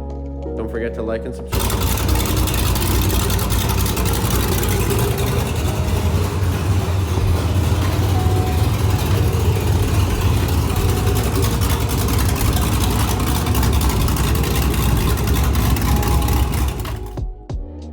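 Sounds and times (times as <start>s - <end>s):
vee eight truck engine running: 1.5s - 17.2s.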